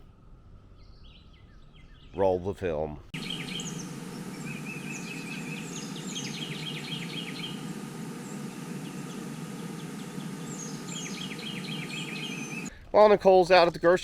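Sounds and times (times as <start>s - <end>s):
birds chirping: 0.6s - 2.6s, 3.2s - 12.8s
low background rumble: 3.2s - 13.0s.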